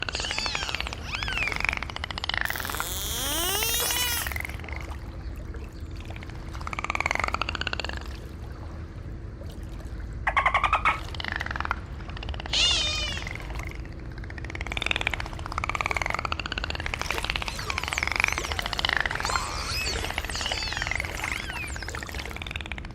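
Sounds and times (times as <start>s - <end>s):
dolphin whistles: 0.0s - 4.4s, 12.5s - 13.4s, 17.4s - 22.5s
dolphin buzzy pulsed call: 0.0s - 4.6s, 12.5s - 13.8s, 15.8s - 22.8s.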